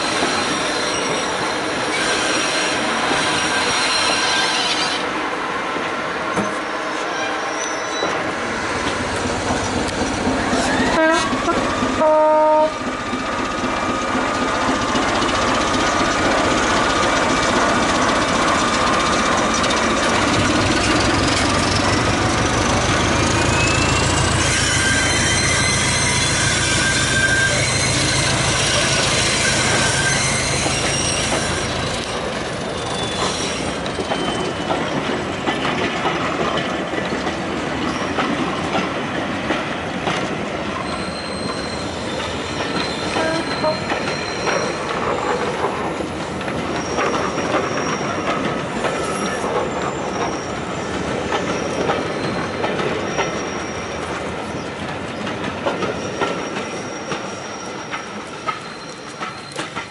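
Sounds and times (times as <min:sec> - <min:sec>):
wheel squeals: 0:00.0 - 0:05.1, 0:06.3 - 0:11.8, 0:13.8 - 0:37.2, 0:40.8 - 0:59.9
diesel locomotive engine: 0:00.0 - 0:59.9
coaches clattering over rail joints: 0:13.1 - 0:59.9.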